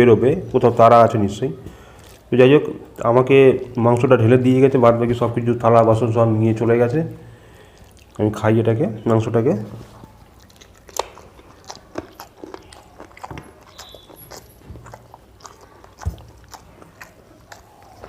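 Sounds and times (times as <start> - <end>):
wet chewing and lip smacks: 1.7 - 3.9, 7.1 - 8.3, 9.8 - 18.0.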